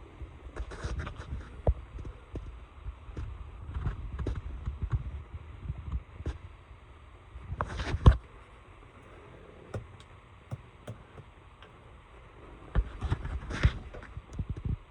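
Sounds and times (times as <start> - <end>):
low steady hum: 0.0 - 14.9
light clicks and knocks: 9.0 - 11.8.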